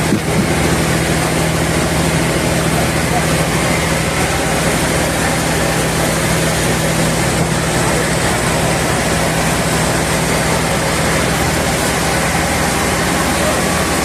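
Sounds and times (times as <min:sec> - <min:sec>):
low motor hum: 0:00.0 - 0:14.0
sawmill machinery running: 0:00.0 - 0:14.0.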